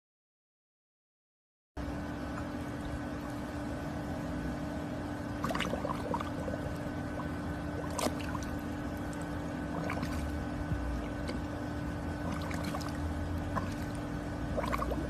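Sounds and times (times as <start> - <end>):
steady hum: 1.8 - 15.0
water splashing and lapping: 5.1 - 15.0
dog slurping water: 5.4 - 10.4, 12.2 - 15.0.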